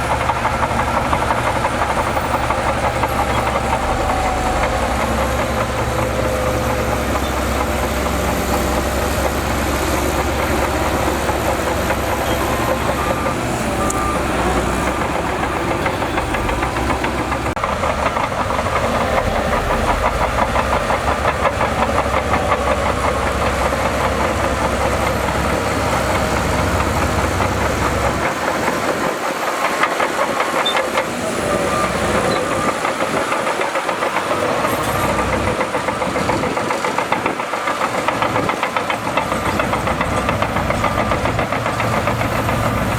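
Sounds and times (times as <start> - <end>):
heavy diesel engine rumbling: 0.0 - 42.9.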